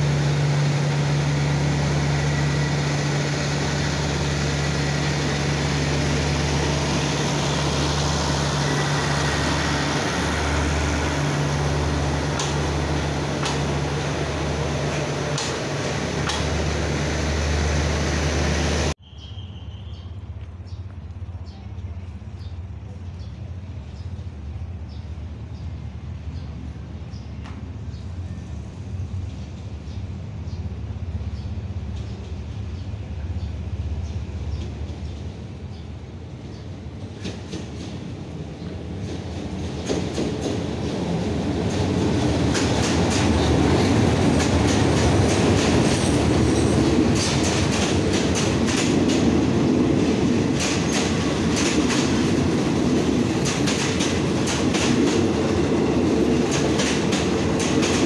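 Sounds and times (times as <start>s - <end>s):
diesel engine rumble: 0.0s - 19.0s, 28.8s - 58.0s
train wheels clacking over rail joints: 12.2s - 16.8s, 37.1s - 58.0s.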